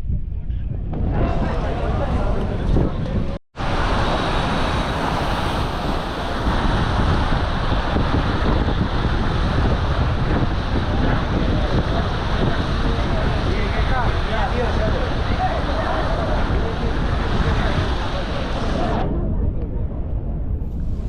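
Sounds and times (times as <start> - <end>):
floodwater rushing through spillway: 3.6 - 19.0.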